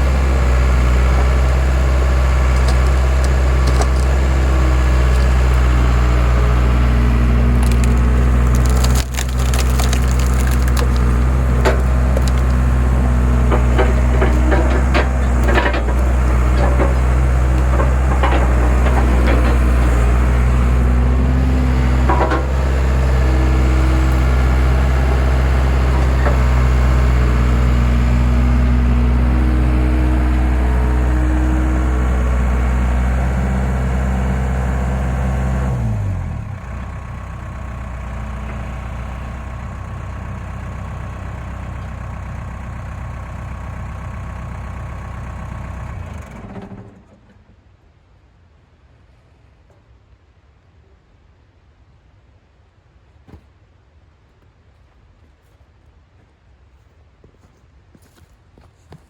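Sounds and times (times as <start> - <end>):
skid steer engine running: 0.0 - 47.5
wood cracking and snapping: 0.1 - 28.8.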